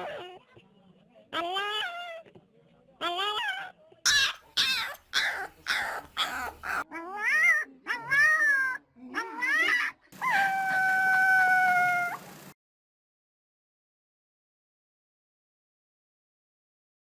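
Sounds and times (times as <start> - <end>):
animal harsh cries: 1.3 - 2.3, 3.0 - 12.3.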